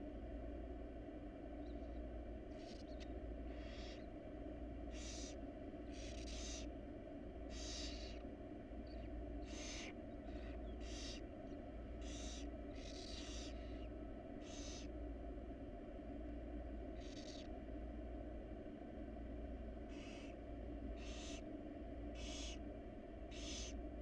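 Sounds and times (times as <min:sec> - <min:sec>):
steady low hum: 0:00.0 - 0:24.0
owl chicks hissing: 0:02.5 - 0:04.1, 0:04.8 - 0:06.7, 0:07.4 - 0:08.3, 0:08.9 - 0:11.3, 0:11.9 - 0:15.0, 0:16.9 - 0:17.5, 0:19.9 - 0:21.5, 0:22.1 - 0:22.6, 0:23.3 - 0:23.8.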